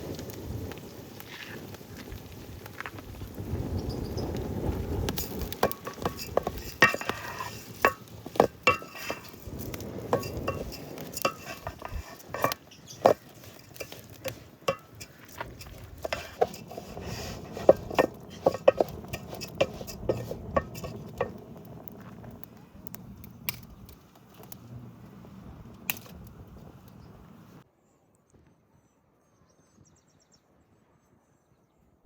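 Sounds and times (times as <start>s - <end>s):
metal utensils clinking on pots: 5.5s - 21.4s.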